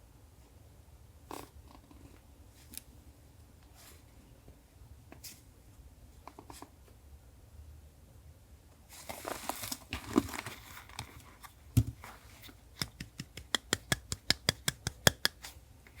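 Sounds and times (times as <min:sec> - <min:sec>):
paper rustling and crinkling: 0:08.9 - 0:12.6.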